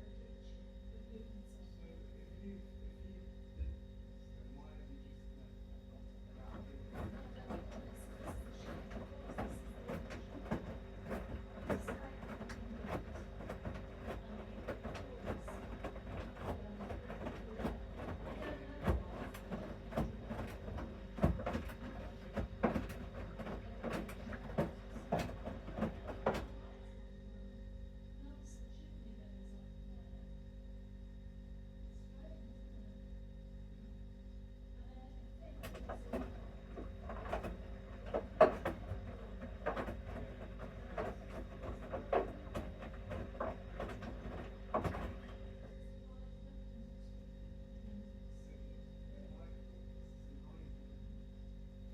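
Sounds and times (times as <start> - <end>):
washing machine motor hum: 0.0 - 51.9
wet laundry thudding in drum: 6.9 - 26.6.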